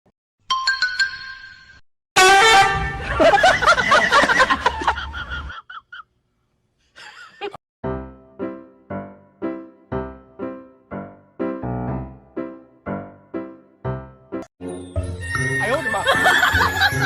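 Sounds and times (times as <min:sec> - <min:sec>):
loud horn-like honking: 0:02.2 - 0:03.2
piano notes: 0:07.8 - 0:15.7.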